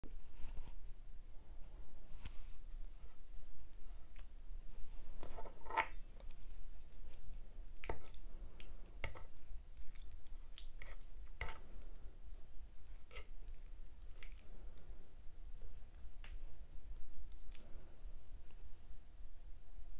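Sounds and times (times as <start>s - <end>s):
wet mouth sounds eating: 7.8s - 12.1s, 12.9s - 14.9s.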